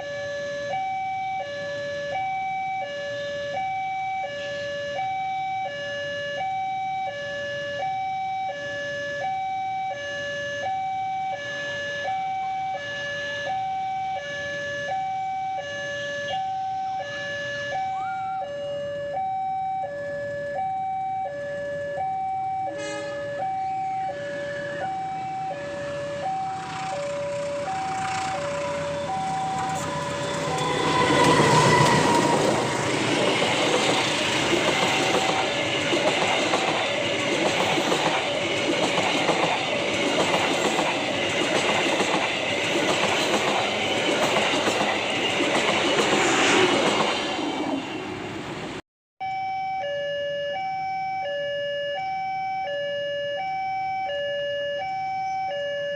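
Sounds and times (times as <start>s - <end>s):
train horn: 15.7s - 18.4s, 22.7s - 35.6s
passing train rumble: 21.4s - 48.8s
level crossing two-note alarm: 49.2s - 55.9s.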